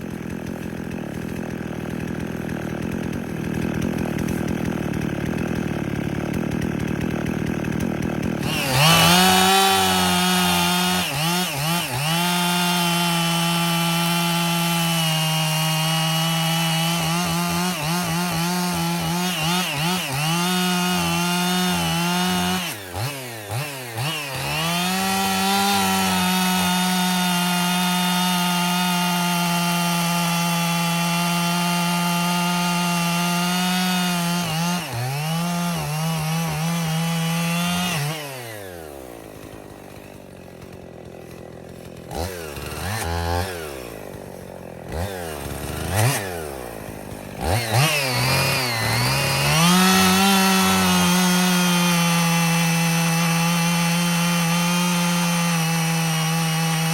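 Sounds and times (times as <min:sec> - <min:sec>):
chainsaw revving: 0:00.0 - 0:56.9.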